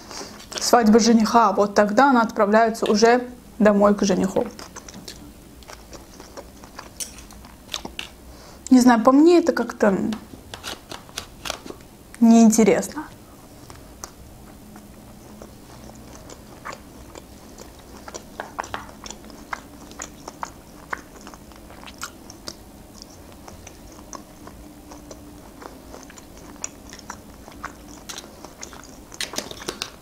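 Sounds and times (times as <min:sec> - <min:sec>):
close-up chewing: 0:00.1 - 0:00.8, 0:04.2 - 0:08.7, 0:13.0 - 0:30.0.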